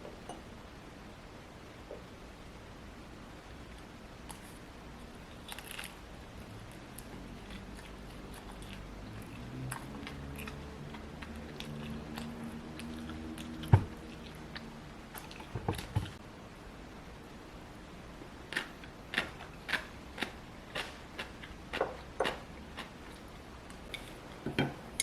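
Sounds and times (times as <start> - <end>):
chewing and crunching food: 4.3 - 16.2, 18.5 - 24.2.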